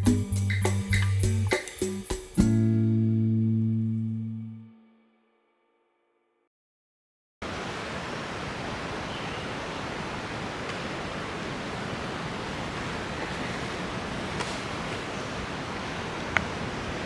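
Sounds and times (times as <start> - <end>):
ocean surf rushing: 7.4 - 17.0
wind: 7.4 - 17.0.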